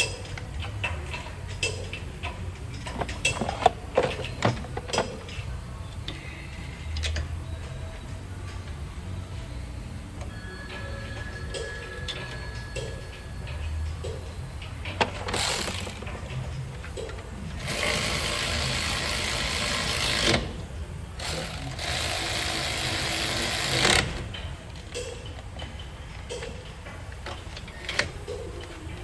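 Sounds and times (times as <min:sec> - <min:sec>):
tool clicks and rattles: 0:00.0 - 0:05.4, 0:14.8 - 0:20.6.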